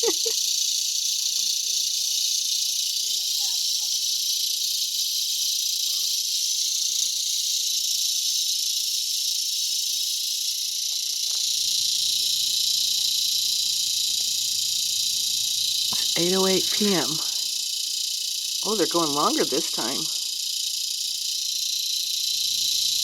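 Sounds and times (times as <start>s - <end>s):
cicadas buzzing: 0.0s - 23.0s.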